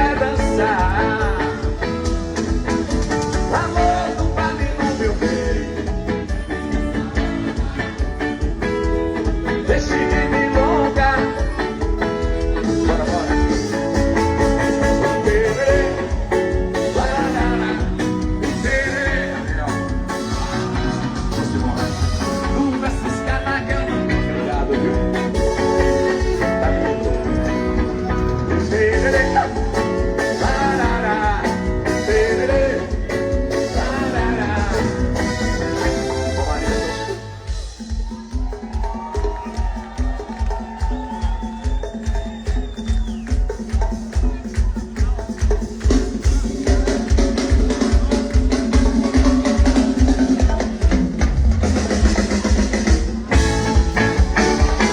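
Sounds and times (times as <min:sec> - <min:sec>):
loud band music: 0:00.0 - 0:54.9.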